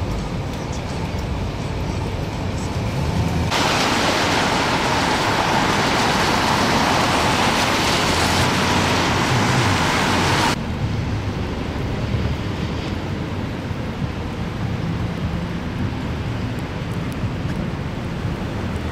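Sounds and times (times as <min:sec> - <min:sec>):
low traffic rumble: 0:00.0 - 0:18.9
traffic hissing on slush: 0:02.9 - 0:10.6.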